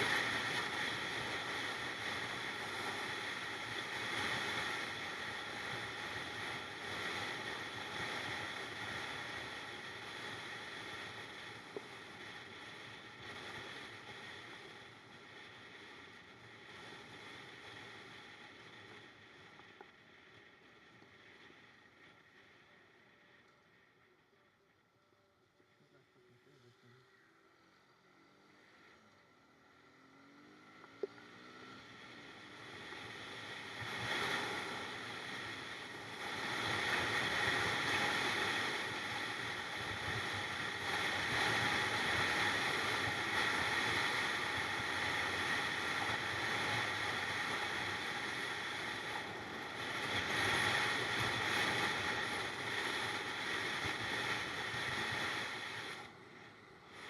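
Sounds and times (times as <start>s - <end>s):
rushing wind: 32.4s - 56.1s.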